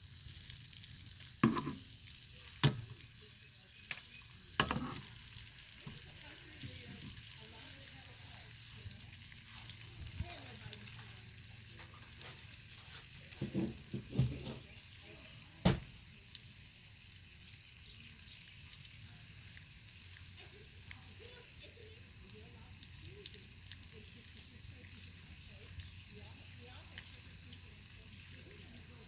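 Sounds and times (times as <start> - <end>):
fire crackling and popping: 0.0 - 14.8
bacon sizzling: 0.0 - 29.0.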